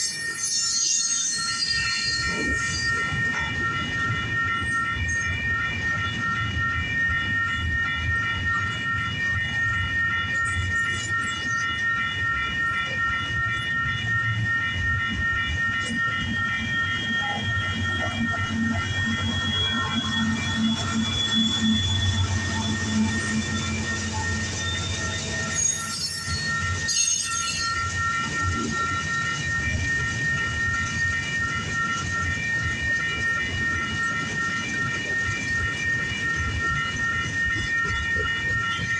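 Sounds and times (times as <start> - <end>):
wheel squeal: 0.0 - 3.4, 18.2 - 29.4
freight train rumbling past: 16.2 - 38.9.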